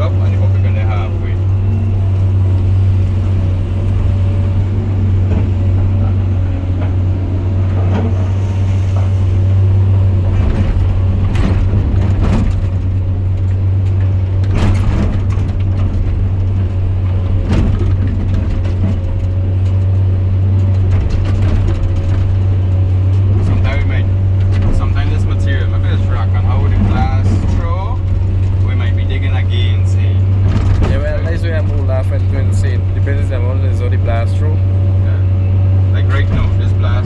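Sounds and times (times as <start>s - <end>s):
diesel engine droning: 0.0s - 37.0s.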